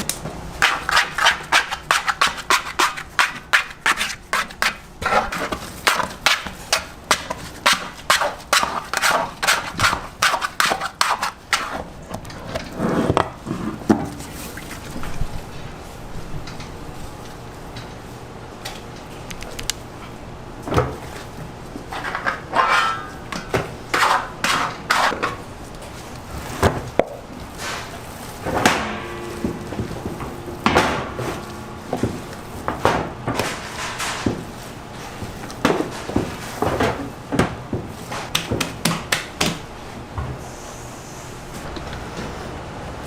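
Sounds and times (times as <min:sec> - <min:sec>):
knocks and clatters of food preparation: 0:00.0 - 0:15.7, 0:20.6 - 0:40.4
low steady hum: 0:25.3 - 0:38.1.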